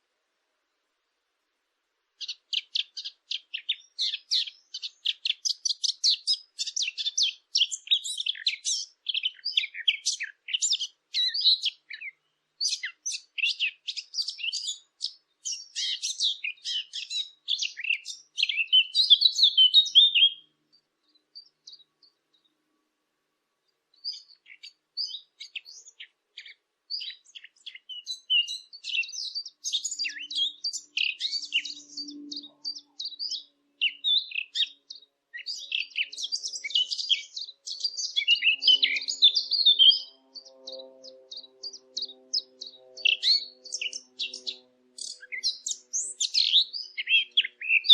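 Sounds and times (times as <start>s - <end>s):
birds chirping and twittering: 2.1s - 47.9s.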